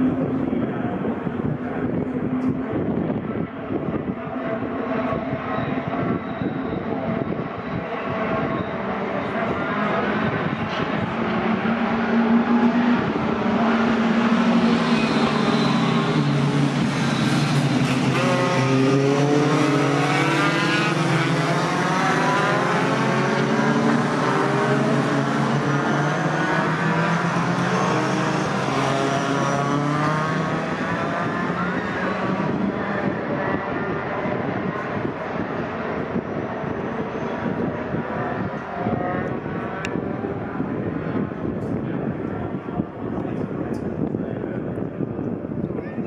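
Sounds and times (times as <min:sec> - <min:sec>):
racing truck engines passing: 0:00.0 - 0:43.0.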